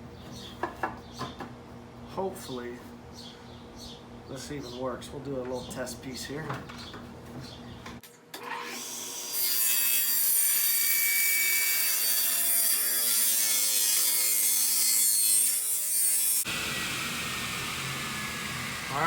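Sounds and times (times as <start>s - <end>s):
table saw cutting wood: 8.4s - 19.0s.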